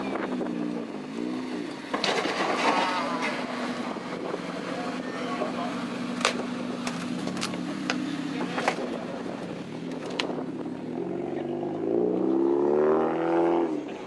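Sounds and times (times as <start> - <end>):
car engine running: 0.0 - 12.2.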